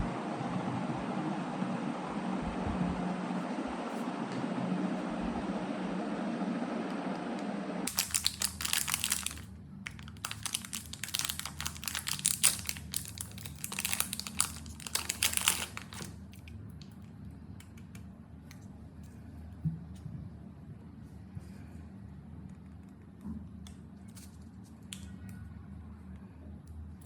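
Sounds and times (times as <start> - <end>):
packaging crinkling: 7.9 - 16.5.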